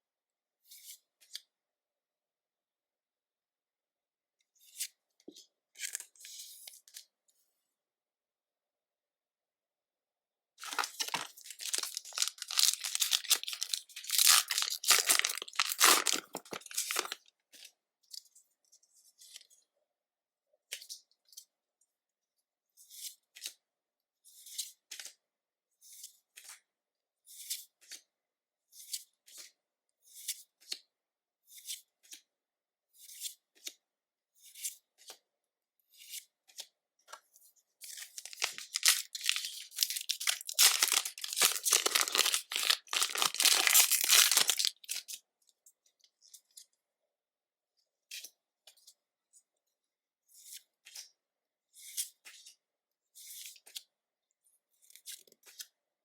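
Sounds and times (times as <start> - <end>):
foil wrapper crinkling: 10.6 - 17.2, 38.1 - 45.2.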